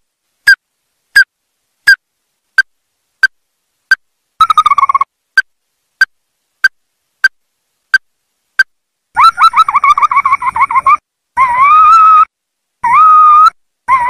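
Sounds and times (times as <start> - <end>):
crake calling: 2.6 - 14.0.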